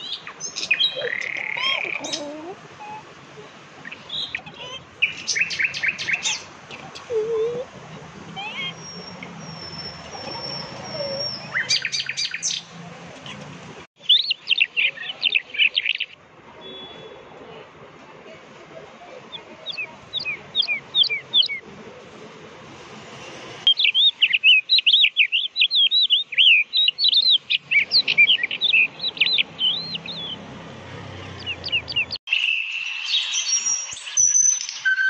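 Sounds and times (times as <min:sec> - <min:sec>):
songbirds chirping and trilling: 0:00.0 - 0:17.3, 0:19.1 - 0:21.7, 0:23.0 - 0:35.0
high whistled bird tones: 0:08.4 - 0:12.6, 0:31.4 - 0:35.0.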